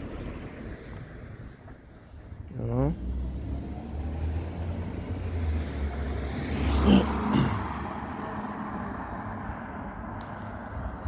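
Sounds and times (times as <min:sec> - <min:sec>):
vehicle driving past: 0:02.9 - 0:10.1.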